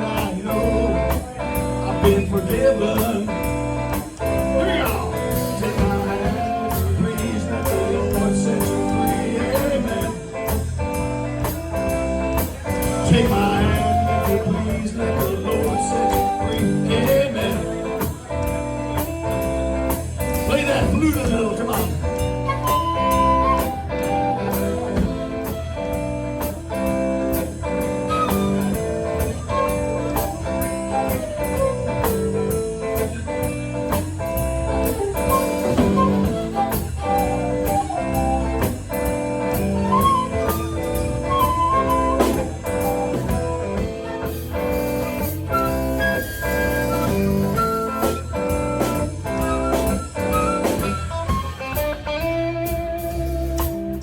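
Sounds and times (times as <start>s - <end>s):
blues band playing: 0.0s - 54.0s
flute solo melody: 6.1s - 7.2s, 13.4s - 17.3s, 22.1s - 33.5s, 34.6s - 52.7s.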